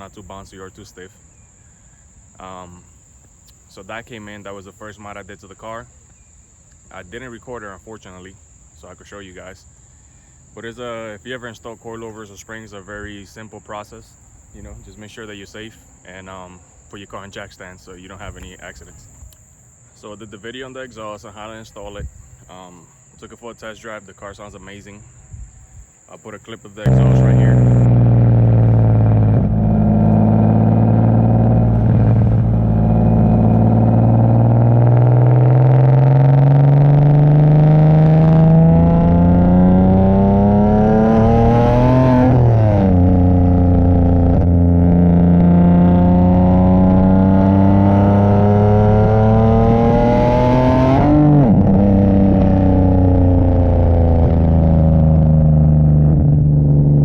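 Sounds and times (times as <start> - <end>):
car engine accelerating: 26.8 - 57.0.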